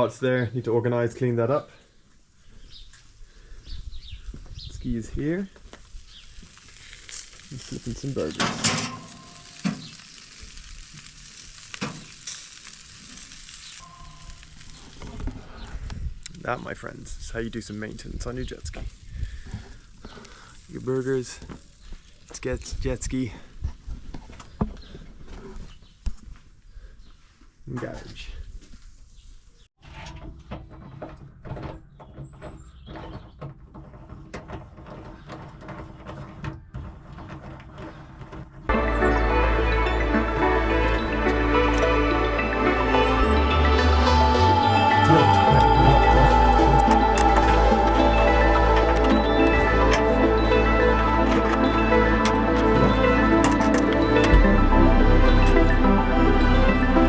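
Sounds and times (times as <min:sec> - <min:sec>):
burgers being turned: 0:05.8 - 0:16.4
burgers sizzling: 0:05.8 - 0:16.4, 0:17.6 - 0:22.6, 0:38.7 - 0:57.0.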